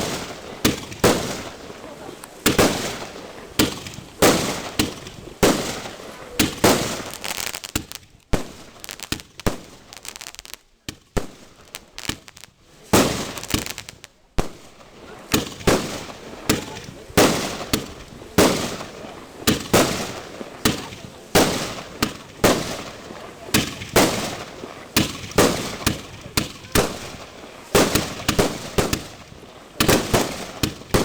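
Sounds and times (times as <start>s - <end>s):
fireworks bangs: 0.0s - 31.0s
fireworks crackling: 0.0s - 31.0s.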